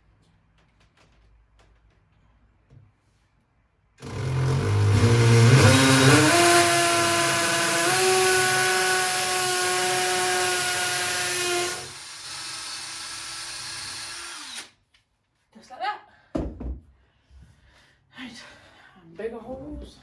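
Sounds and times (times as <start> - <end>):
electric power drill boring: 4.0 - 14.7.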